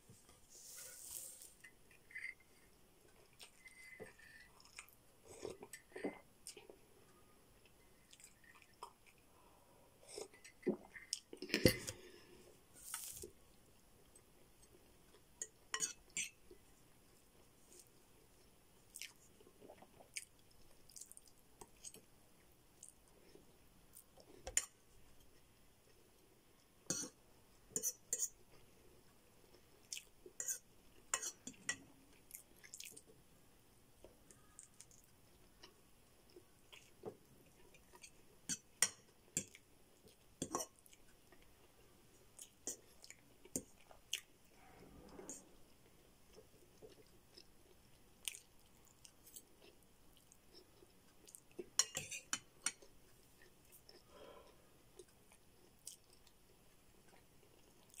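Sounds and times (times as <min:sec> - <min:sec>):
wet chewing and mouth clicks: 0:18.9 - 0:22.0, 0:31.2 - 0:33.1, 0:46.3 - 0:54.1, 0:55.0 - 0:58.0
fork scraping and tapping bowl: 0:27.8 - 0:28.3, 0:30.4 - 0:31.8, 0:51.8 - 0:52.8.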